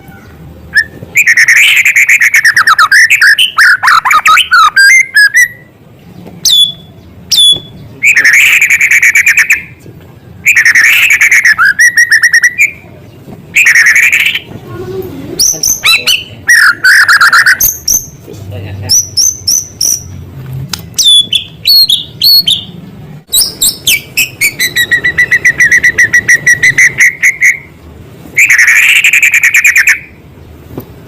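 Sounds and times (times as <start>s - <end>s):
songbird singing trills: 0.1s - 14.6s, 18.9s - 20.2s, 21.0s - 27.8s.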